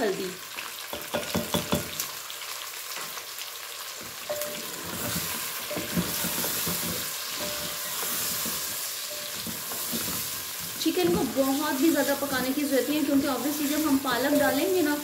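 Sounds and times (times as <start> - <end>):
chicken sizzling in oil: 0.0 - 15.0
wooden spoon scraping pot: 4.5 - 12.4.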